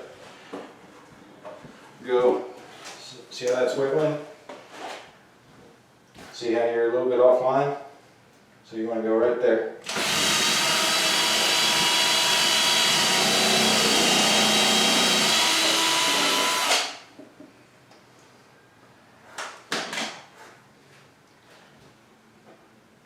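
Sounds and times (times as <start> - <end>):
power drill whining: 9.9 - 17.0.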